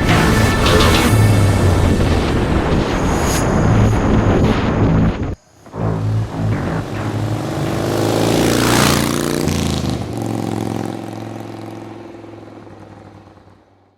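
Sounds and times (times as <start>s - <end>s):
motorcycle engine passing by: 6.0s - 13.9s.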